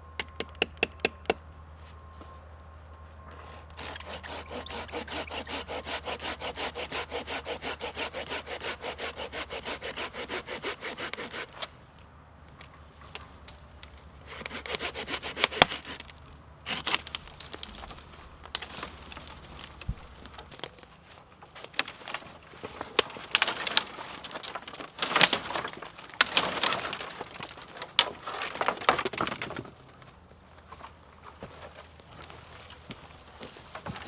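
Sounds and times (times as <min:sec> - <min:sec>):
wood cracking and splintering: 0:03.8 - 0:11.7, 0:13.1 - 0:30.2.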